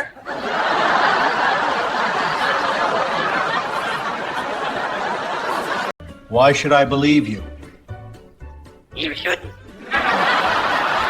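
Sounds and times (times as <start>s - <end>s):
crowd laughing: 0.0s - 6.0s, 9.7s - 11.0s.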